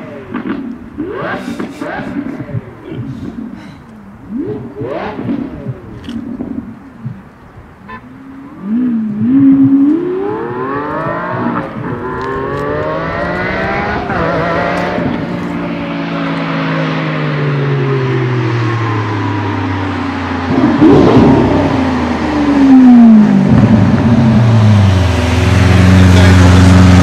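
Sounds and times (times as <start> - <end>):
sports car engine revving: 0.0 - 7.2, 7.9 - 27.0
car accelerating hard: 4.2 - 6.8, 8.3 - 27.0.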